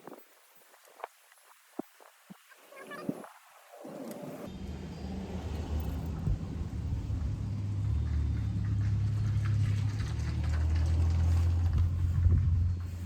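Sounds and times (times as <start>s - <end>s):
low engine hum: 4.4s - 13.0s.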